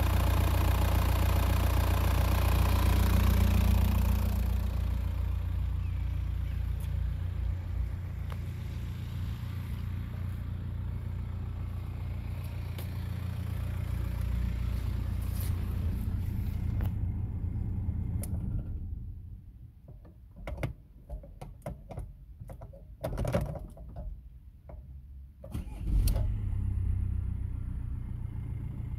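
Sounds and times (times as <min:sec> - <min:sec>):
diesel engine idling: 0:00.0 - 0:19.7
engine starting: 0:25.4 - 0:28.2.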